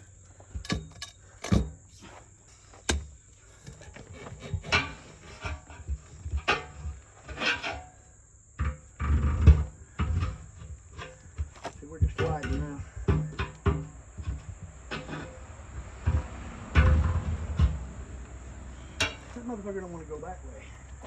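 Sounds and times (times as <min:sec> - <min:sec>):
pry bars clanking on tire rim: 0:00.4 - 0:02.2, 0:02.8 - 0:08.0, 0:08.6 - 0:20.0
heavy thumps: 0:08.7 - 0:18.0.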